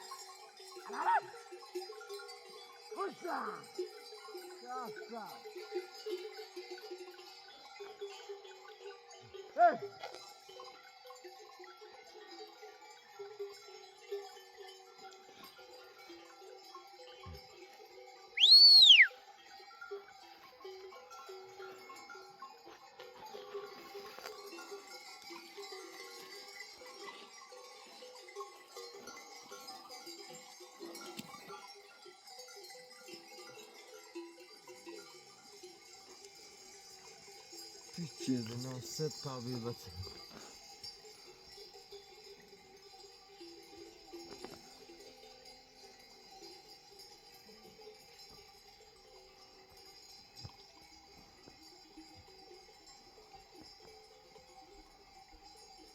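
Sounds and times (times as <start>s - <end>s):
sheep bells clanking: 0.0s - 55.9s.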